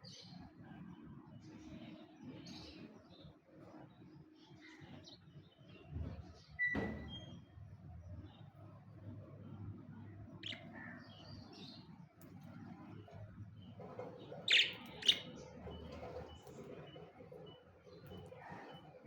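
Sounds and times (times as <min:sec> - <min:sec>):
budgerigars chirping: 0:10.4 - 0:10.9, 0:14.4 - 0:16.3.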